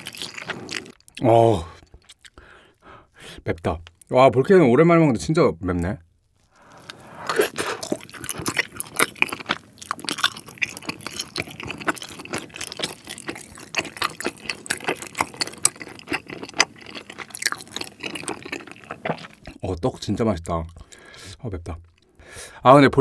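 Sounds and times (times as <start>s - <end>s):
chewing with wet mouth smacks: 0.0s - 1.2s, 1.8s - 2.4s, 6.6s - 19.6s.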